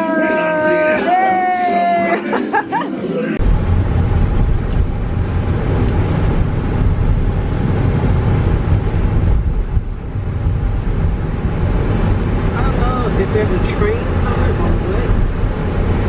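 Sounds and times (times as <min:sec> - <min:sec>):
train low rumble: 0:03.4 - 0:16.0.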